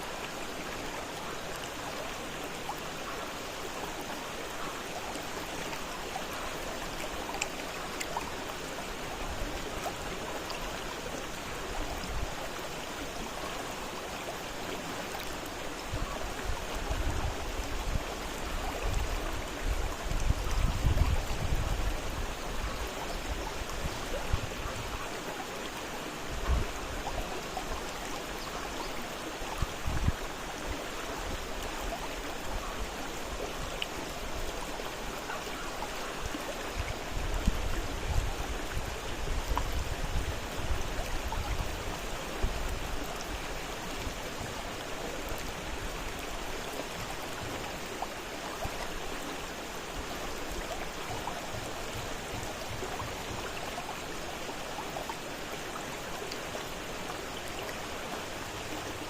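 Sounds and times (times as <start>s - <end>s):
river rushing over rocks: 0.0s - 59.0s
wind buffeting microphone: 18.8s - 25.0s.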